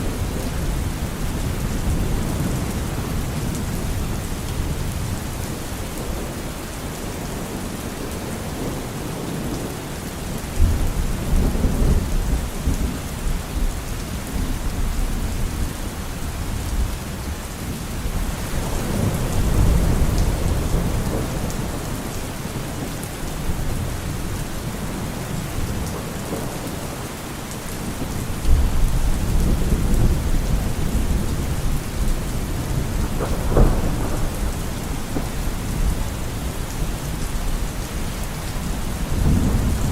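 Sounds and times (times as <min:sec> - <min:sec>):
heavy rain: 0:00.0 - 0:39.9
thunder rumbling: 0:18.0 - 0:27.1, 0:27.8 - 0:39.9.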